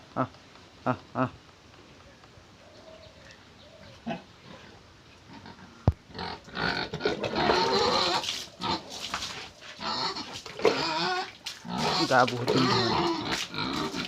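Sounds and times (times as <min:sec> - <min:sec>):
pigs vocalizing loudly: 0:04.0 - 0:14.0.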